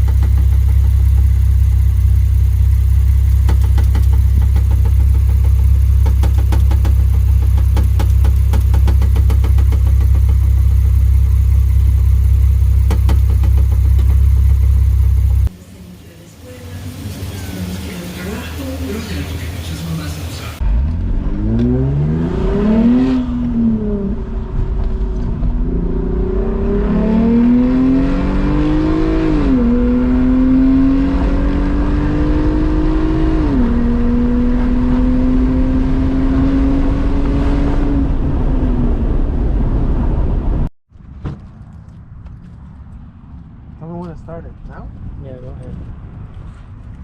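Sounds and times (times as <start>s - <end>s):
car exhaust through gear shifts: 0.0s - 40.6s.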